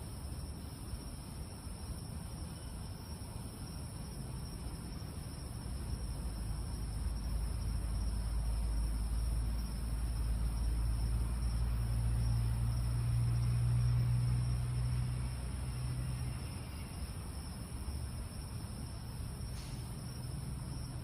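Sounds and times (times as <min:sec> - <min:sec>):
night insects chirping: 0:00.0 - 0:21.0.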